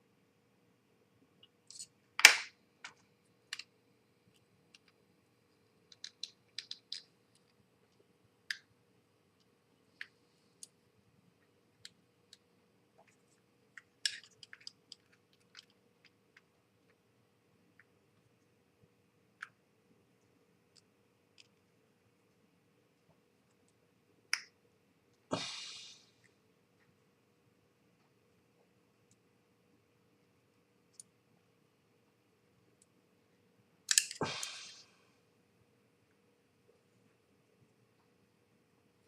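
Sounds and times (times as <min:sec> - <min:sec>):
small parts clicking and tapping: 0:01.4 - 0:10.8, 0:11.4 - 0:17.0, 0:20.2 - 0:21.7, 0:30.8 - 0:31.2, 0:33.8 - 0:34.6.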